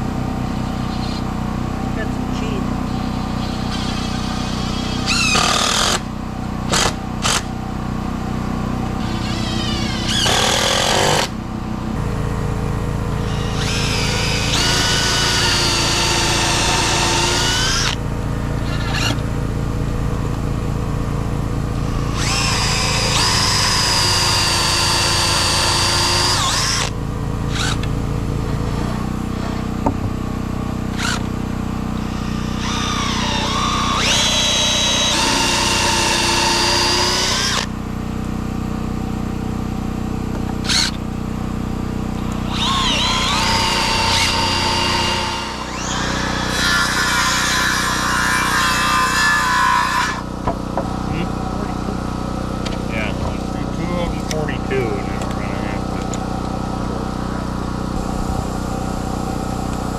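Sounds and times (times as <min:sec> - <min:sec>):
low engine hum: 0:00.0 - 0:46.4, 0:50.2 - 0:59.9
power drill whining: 0:00.6 - 0:01.3, 0:02.8 - 0:07.6, 0:08.9 - 0:12.1, 0:13.2 - 0:19.3, 0:21.8 - 0:30.0, 0:30.9 - 0:31.3, 0:32.0 - 0:37.7, 0:40.4 - 0:41.0, 0:42.2 - 0:52.0.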